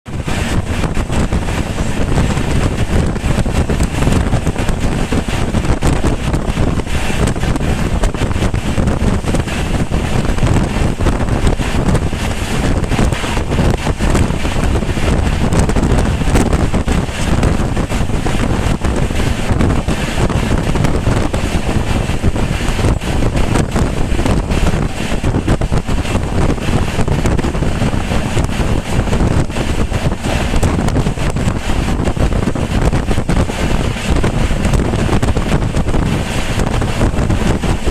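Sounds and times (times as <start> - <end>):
passenger train rumbling: 0.0 - 37.9
wind rushing over microphone: 0.0 - 37.9.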